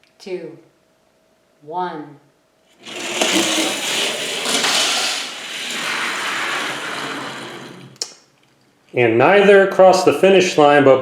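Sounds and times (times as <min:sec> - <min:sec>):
toy cars rattling down track: 0:02.8 - 0:08.2.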